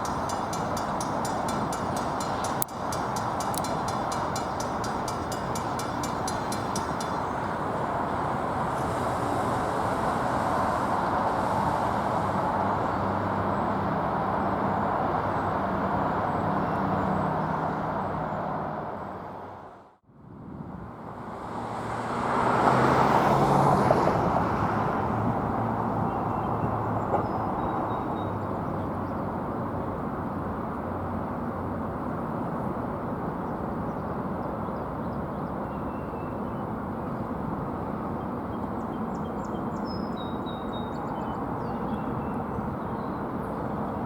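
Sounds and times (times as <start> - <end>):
train rolling noise: 0.0 - 13.5.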